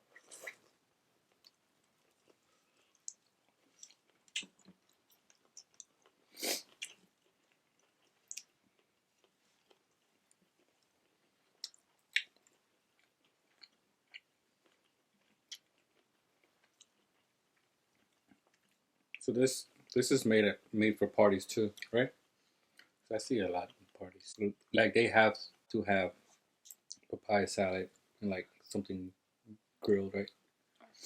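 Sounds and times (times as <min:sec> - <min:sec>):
food being chewed: 0:00.0 - 0:19.2.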